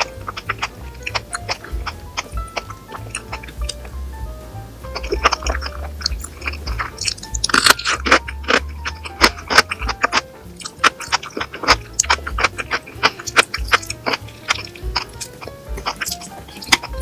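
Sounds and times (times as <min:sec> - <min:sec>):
background music: 0:00.0 - 0:17.0
crunchy chewing of food: 0:05.0 - 0:17.0.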